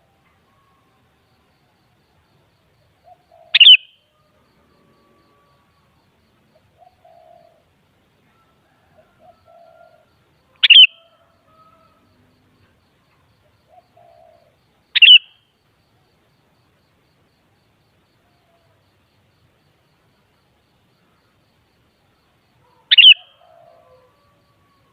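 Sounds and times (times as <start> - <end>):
bird sharp calls: 3.1 - 4.0, 10.6 - 11.1, 13.7 - 15.4, 22.7 - 24.1.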